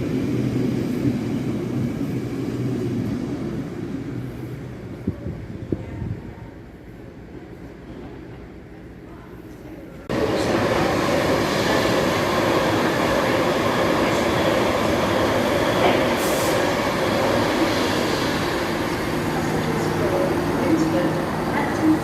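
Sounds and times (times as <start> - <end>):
train wheels on rail: 9.5 - 22.0.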